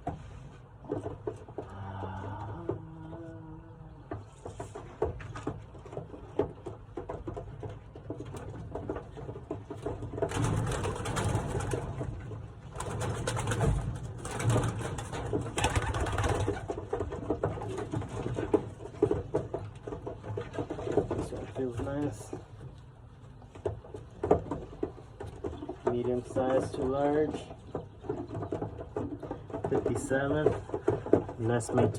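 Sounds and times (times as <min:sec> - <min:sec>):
birds scuffling and flapping: 0:00.0 - 0:31.9.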